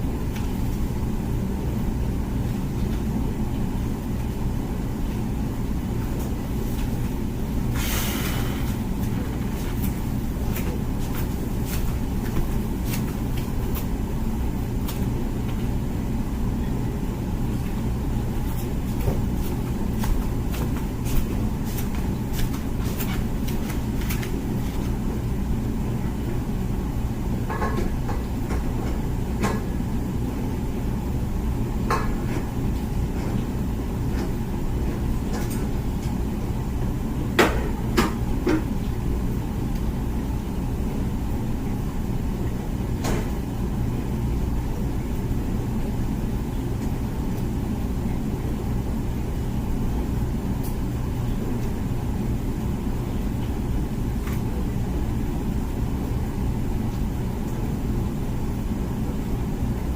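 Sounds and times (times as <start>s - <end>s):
dishwasher pump hum: 0.0s - 59.9s
water spraying inside dishwasher: 0.0s - 59.9s.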